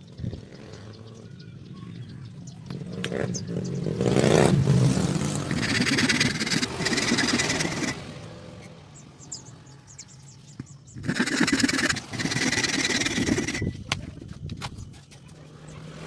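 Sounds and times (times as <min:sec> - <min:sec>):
sharp clicks: 0:05.5 - 0:08.0
small electric motor running: 0:05.5 - 0:08.0, 0:11.0 - 0:13.7.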